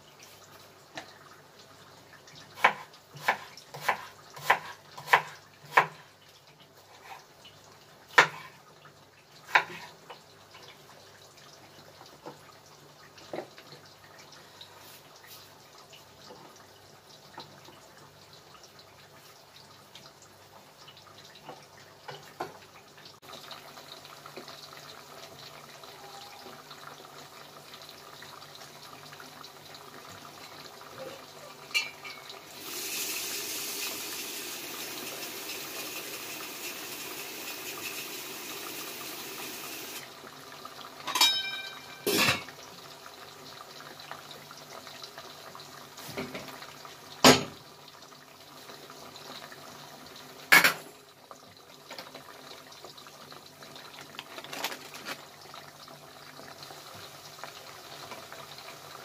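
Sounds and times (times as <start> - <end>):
oil sizzling while deep-frying: 0.0 - 59.0
metal kitchenware clinks and knocks: 41.1 - 42.5.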